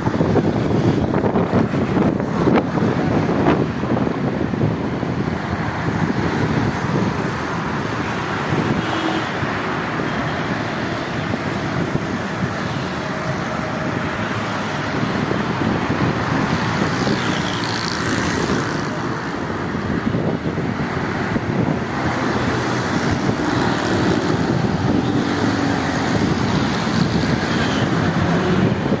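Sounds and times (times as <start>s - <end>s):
road traffic noise: 0.0s - 29.0s
wind buffeting microphone: 0.0s - 29.0s.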